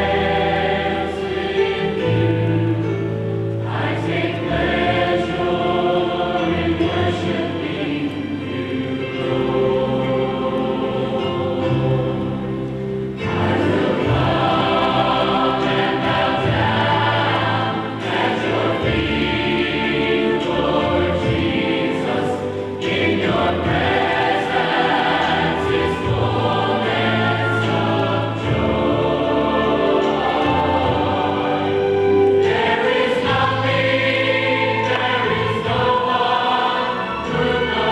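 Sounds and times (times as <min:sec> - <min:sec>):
choir singing sustained chords: 0:00.0 - 0:37.9.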